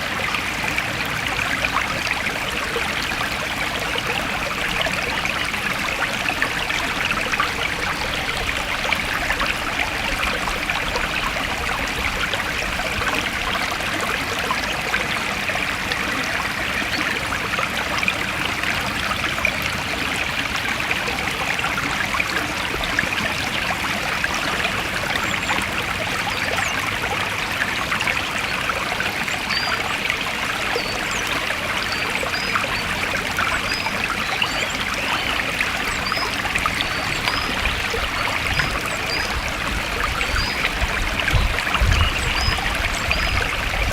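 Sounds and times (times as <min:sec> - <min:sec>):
stream trickling over stones: 0:00.0 - 0:43.9.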